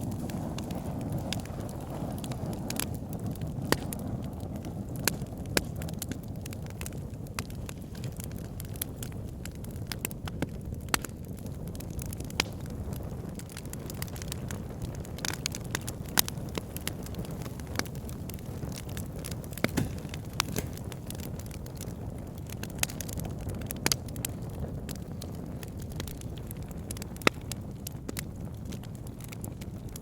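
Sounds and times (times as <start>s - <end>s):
burning wood crackling and popping: 0.0s - 30.0s
low rush of flame: 0.0s - 30.0s.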